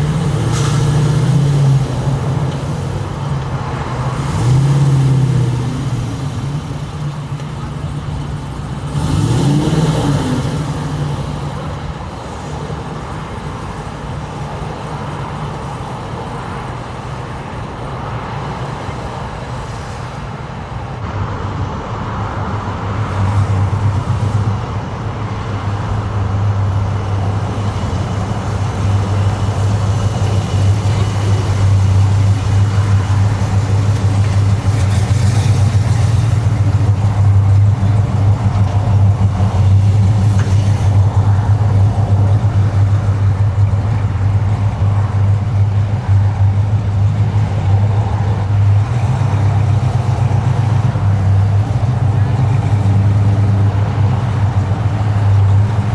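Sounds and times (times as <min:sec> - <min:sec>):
car engine running: 0:21.1 - 0:55.9.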